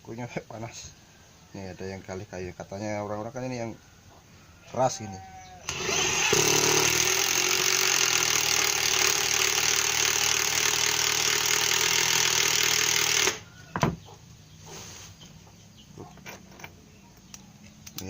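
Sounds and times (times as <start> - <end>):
impact driver boring into wood: 5.6 - 13.5.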